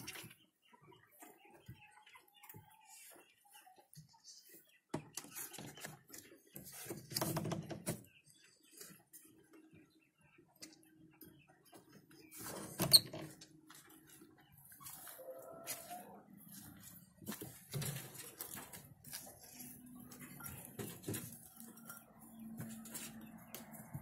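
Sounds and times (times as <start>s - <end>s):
animals rustling in bedding: 14.6s - 24.0s.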